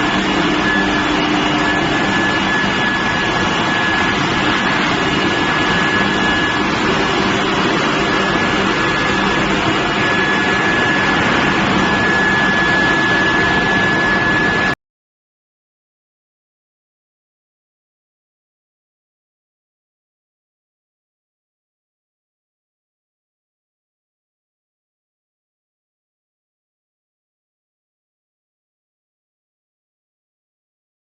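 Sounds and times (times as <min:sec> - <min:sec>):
high-pitched furnace whine: 0:00.0 - 0:14.8
loud machinery noise: 0:00.0 - 0:14.8.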